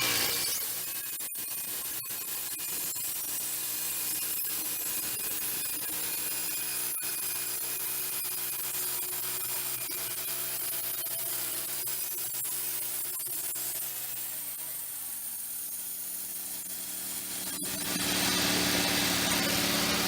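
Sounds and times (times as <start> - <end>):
band sawmill sawing log: 0.0 - 0.8, 13.4 - 20.0.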